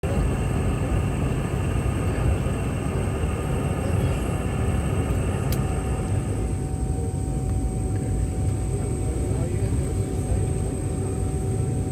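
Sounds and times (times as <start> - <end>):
high-pitched whine: 0.0 - 7.1
aircraft cabin hum: 0.0 - 10.0.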